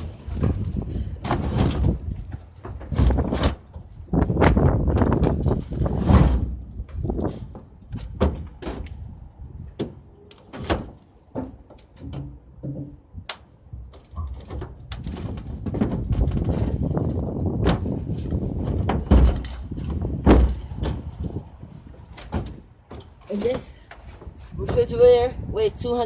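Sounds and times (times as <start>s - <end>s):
refrigerator knocking and thumping: 18.7s - 21.1s.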